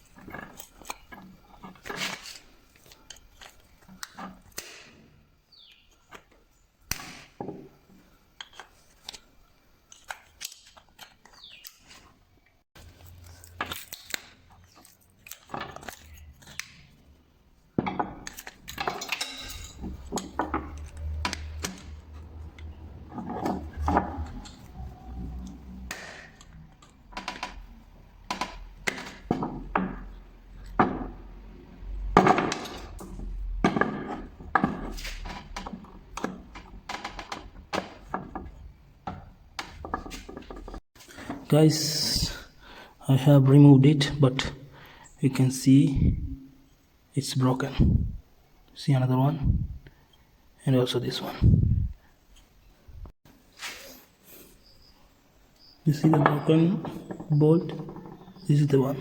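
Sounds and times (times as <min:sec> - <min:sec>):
hand tools clinking on metal: 0:18.3 - 0:20.4.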